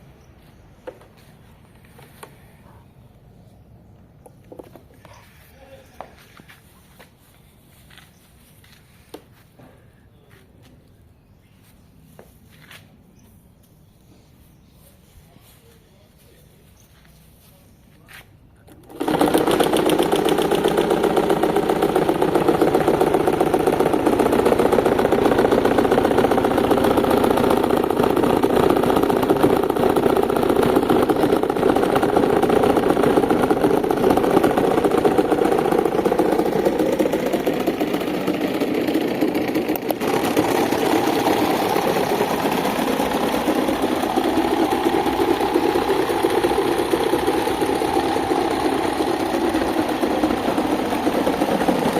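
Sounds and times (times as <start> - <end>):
electric fan buzzing and fluttering: 18.6 - 51.9.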